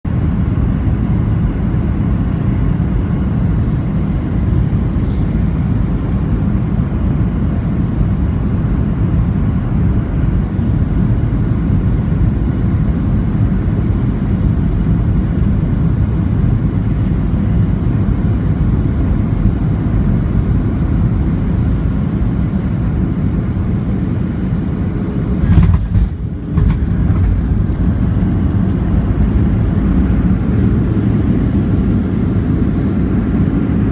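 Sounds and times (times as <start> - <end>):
airplane cabin engine rumble: 0.1 - 33.9
thump and rattle of touchdown: 25.4 - 30.2.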